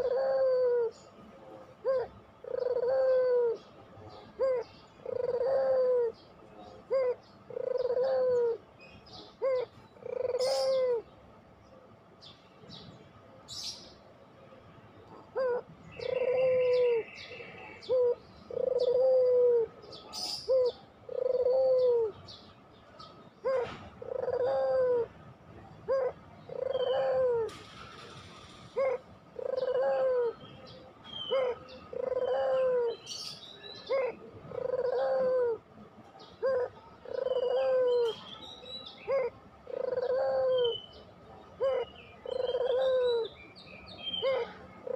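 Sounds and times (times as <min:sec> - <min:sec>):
dove cooing: 0:00.0 - 0:11.1, 0:15.1 - 0:22.3, 0:23.4 - 0:38.3, 0:38.9 - 0:43.4, 0:44.0 - 0:44.9
small birds chirping: 0:36.0 - 0:44.9.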